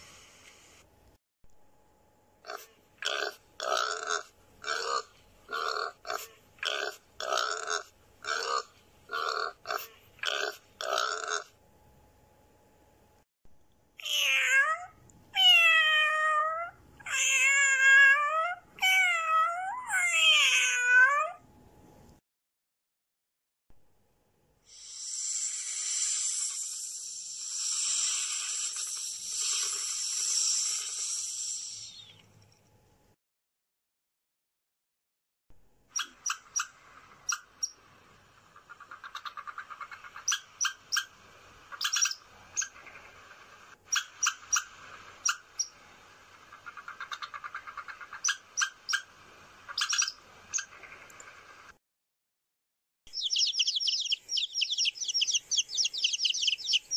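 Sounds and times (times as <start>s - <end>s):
pig grunting: 2.4s - 11.5s
snake hissing: 24.7s - 32.1s, 53.2s - 56.9s.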